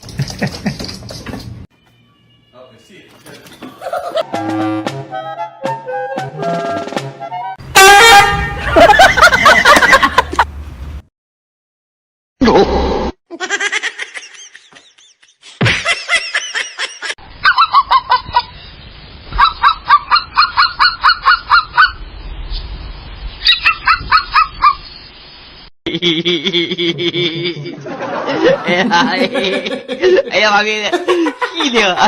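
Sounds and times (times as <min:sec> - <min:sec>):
animal calling: 0:23.4 - 0:24.8.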